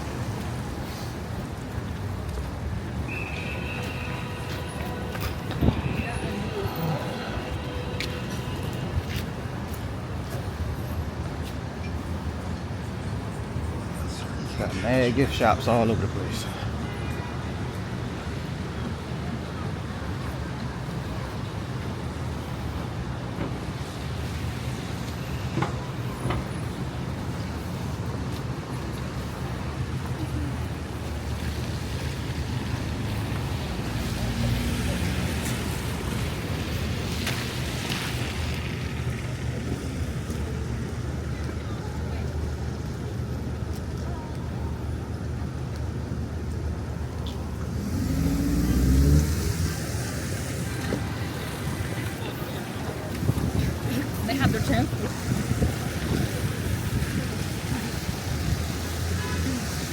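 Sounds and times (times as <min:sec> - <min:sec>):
traffic engine rumble: 0:00.0 - 0:59.9
vehicles passing: 0:00.0 - 0:59.9
tyres hissing on wet pavement: 0:22.3 - 0:40.9, 0:47.4 - 0:59.9
vehicle accelerating past: 0:47.6 - 0:50.1.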